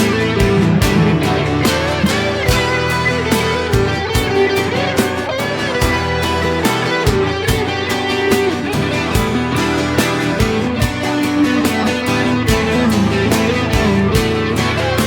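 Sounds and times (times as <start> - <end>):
guitar melody with bends: 0.0 - 15.0
steady drum beat: 0.0 - 15.0.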